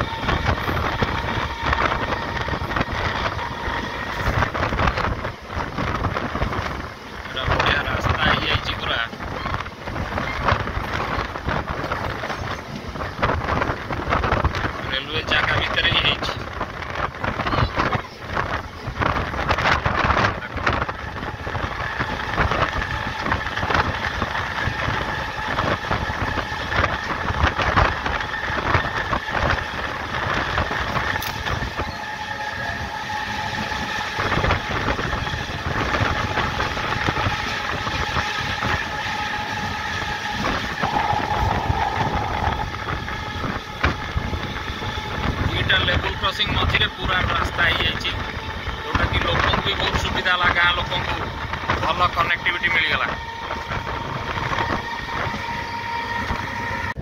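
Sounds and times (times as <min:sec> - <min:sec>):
train wheels rumbling on rails: 0:00.0 - 0:57.0
wheels clacking on rails: 0:00.0 - 0:57.0
multi-tone whine: 0:20.5 - 0:57.0.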